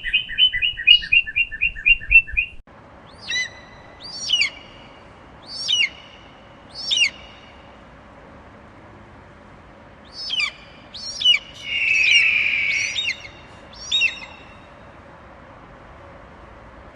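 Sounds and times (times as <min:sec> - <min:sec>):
birds calling: 0:03.1 - 0:07.9, 0:10.0 - 0:15.0
long harsh bird call: 0:10.1 - 0:14.9.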